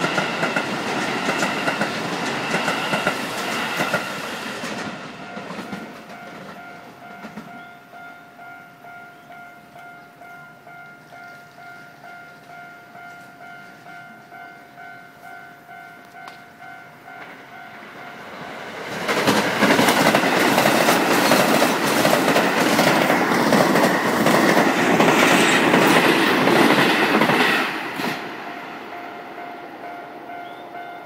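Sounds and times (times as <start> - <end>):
train wheels clattering over rail joints: 0.0 - 7.6, 18.6 - 28.4.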